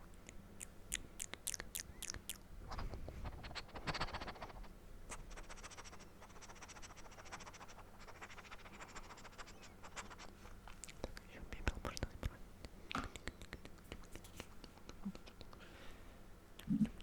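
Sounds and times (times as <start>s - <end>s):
wet tongue and lip clicks: 0.1s - 5.7s, 8.0s - 15.6s.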